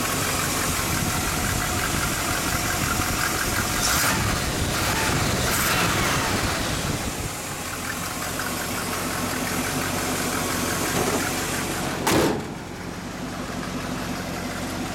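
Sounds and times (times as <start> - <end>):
engine idling: 0.0 - 14.9.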